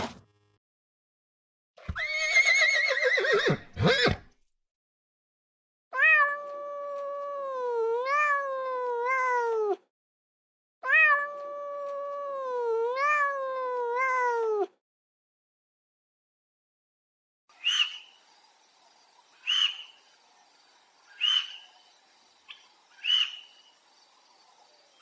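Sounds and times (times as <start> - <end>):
cat yowling: 6.0 - 9.8, 10.8 - 14.7.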